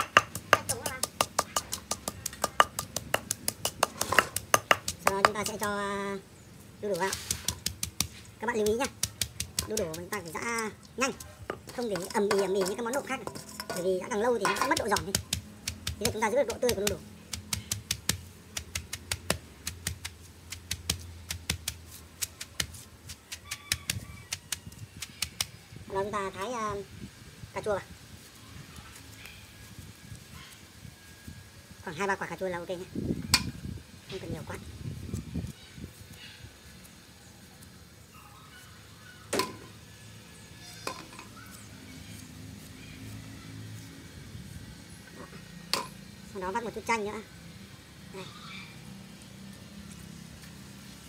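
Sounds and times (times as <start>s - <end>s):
pestle pounding in mortar: 0.0s - 5.8s, 7.0s - 10.4s, 11.1s - 25.6s
utensil clinking on a dish: 11.6s - 15.0s.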